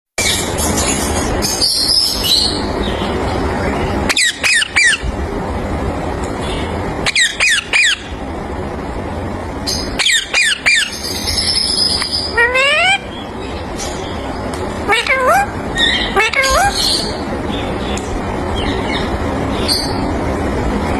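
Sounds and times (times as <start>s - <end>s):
parakeet squawking: 4.0s - 5.1s, 7.0s - 8.2s, 9.7s - 14.2s, 14.8s - 17.2s.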